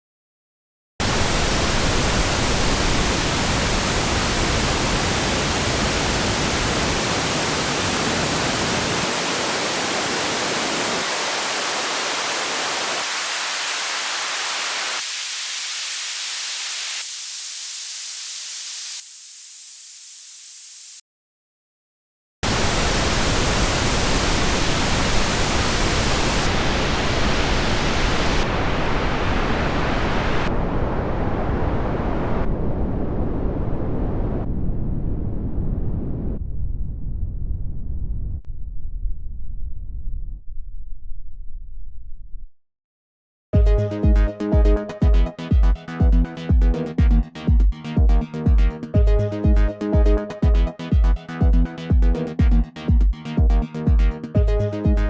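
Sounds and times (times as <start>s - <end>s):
filtered white noise hiss: 1.0s - 21.0s, 22.4s - 32.4s.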